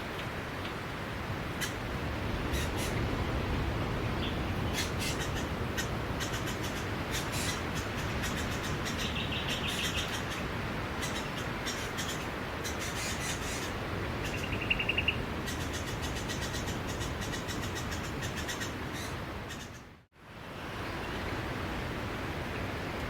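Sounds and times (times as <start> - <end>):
small birds chirping: 4.1 - 19.9.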